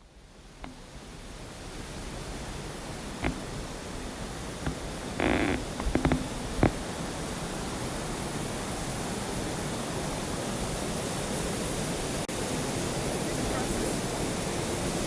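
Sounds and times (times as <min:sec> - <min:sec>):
river water flowing: 0:00.2 - 0:10.7.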